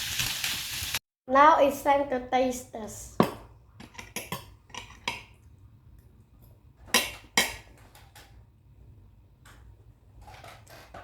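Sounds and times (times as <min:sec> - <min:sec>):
cutlery clinking on kitchenware: 0:03.8 - 0:05.4.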